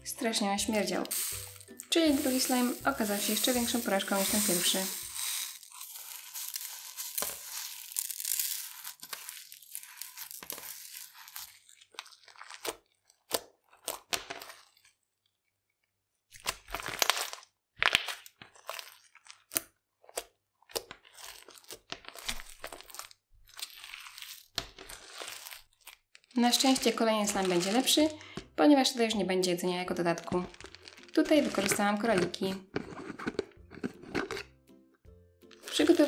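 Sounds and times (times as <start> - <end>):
sprinkles falling onto slime: 0.8 - 12.9, 20.7 - 29.2, 30.0 - 32.1, 35.5 - 36.0
sticky slime crackling: 1.3 - 14.9, 16.4 - 28.3, 30.0 - 32.1.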